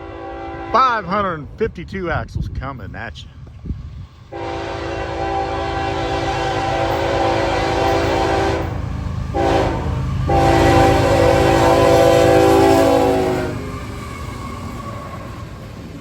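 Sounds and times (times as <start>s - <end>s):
locomotive horn blasts: 0.0s - 1.0s, 4.3s - 13.8s
train rumble: 0.0s - 16.0s.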